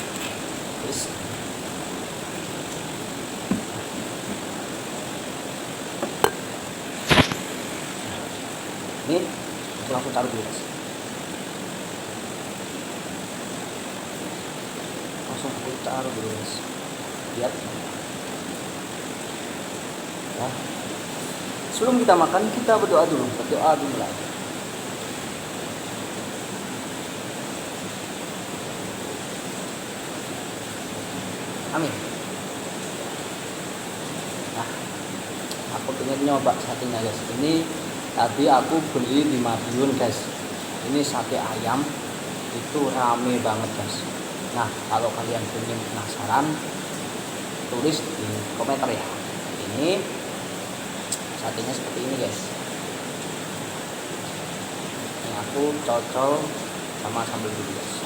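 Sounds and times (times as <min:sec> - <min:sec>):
steady background hiss: 0:00.0 - 0:58.0
plate and utensils clinking: 0:06.0 - 0:07.4.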